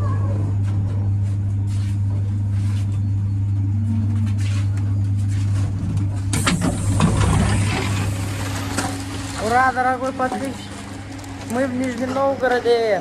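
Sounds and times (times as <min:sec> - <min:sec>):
low electrical hum in train: 0:00.0 - 0:13.0.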